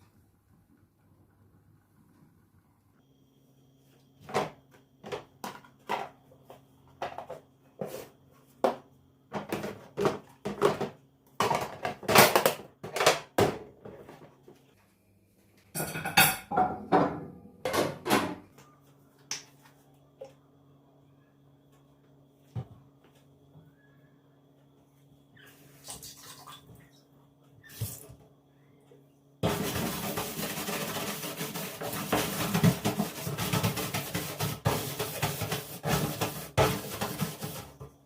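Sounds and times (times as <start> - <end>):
dishes and utensils clinking: 15.8 - 18.0.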